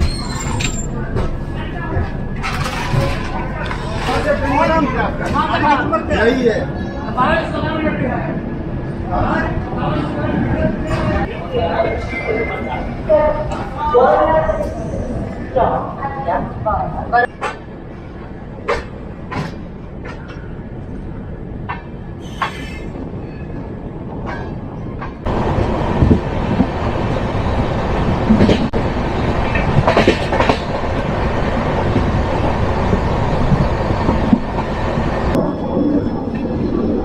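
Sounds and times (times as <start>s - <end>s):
train rumble: 0.0s - 37.0s
train wheel clacks: 29.4s - 30.8s.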